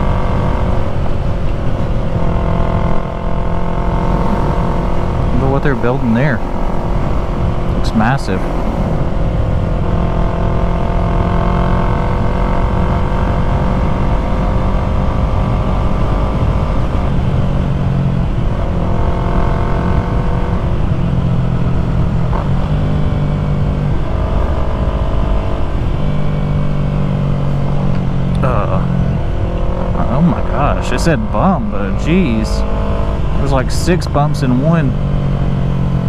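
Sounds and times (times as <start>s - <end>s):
motorcycle engine running: 0.0s - 36.0s
wind rush: 4.0s - 10.0s.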